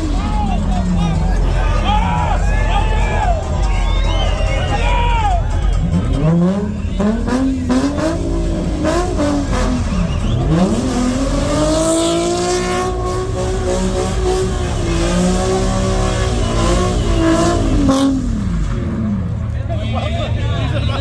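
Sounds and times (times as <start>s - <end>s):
car engine revving hard: 5.8s - 19.4s.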